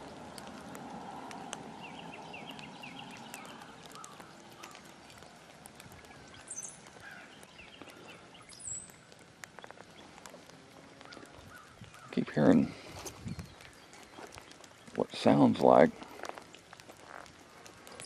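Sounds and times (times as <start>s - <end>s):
faint scattered ticks: 0.0s - 18.0s
light rain falling: 0.0s - 18.0s
small bird chirping: 1.3s - 15.4s.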